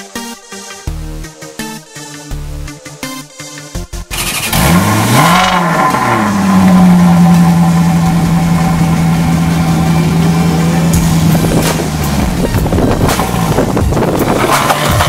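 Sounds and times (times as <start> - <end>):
car engine starting and idling: 4.0 - 15.0.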